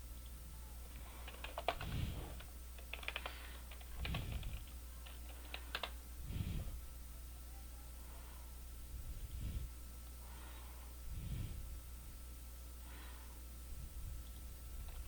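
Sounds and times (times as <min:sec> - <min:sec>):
steady low hum: 0:00.0 - 0:15.0
computer keyboard typing: 0:01.0 - 0:06.0.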